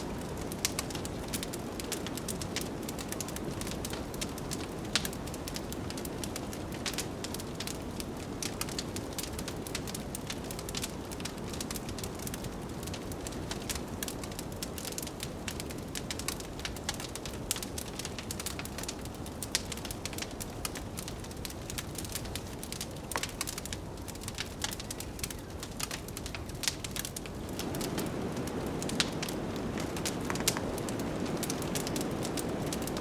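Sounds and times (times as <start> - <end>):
wood fire crackling and popping: 0.0 - 33.0
blizzard wind rushing: 27.2 - 33.0.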